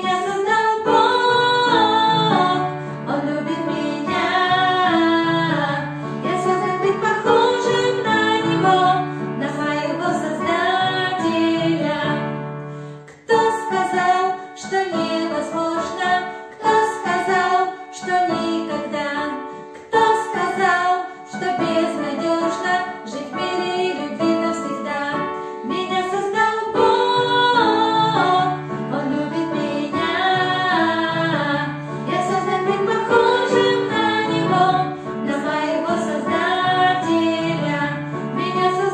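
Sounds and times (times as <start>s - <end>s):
woman singing: 0.0s - 12.3s, 13.2s - 38.9s
keyboard accompaniment: 0.0s - 38.9s.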